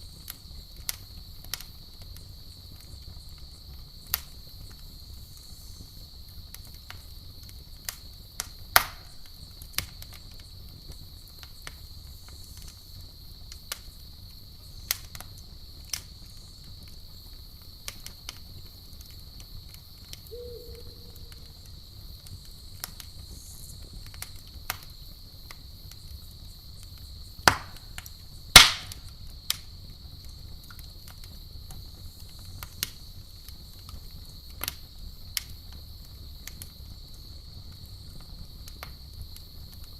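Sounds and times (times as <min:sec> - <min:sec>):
campfire crackling and popping: 0:00.0 - 0:36.9
crickets chirring: 0:18.6 - 0:29.0.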